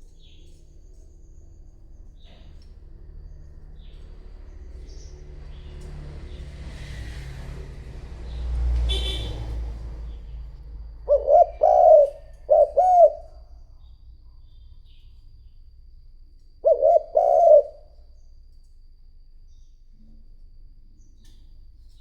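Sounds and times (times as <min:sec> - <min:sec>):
dove cooing: 0:11.0 - 0:13.5, 0:16.6 - 0:18.0.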